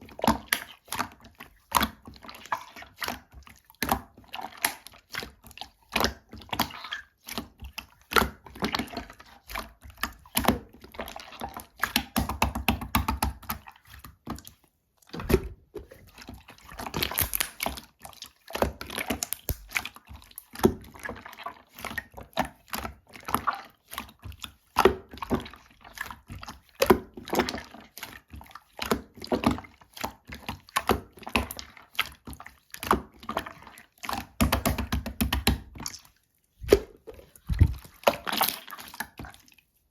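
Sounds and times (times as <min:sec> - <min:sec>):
slime squelching and popping: 0:15.1 - 0:39.6.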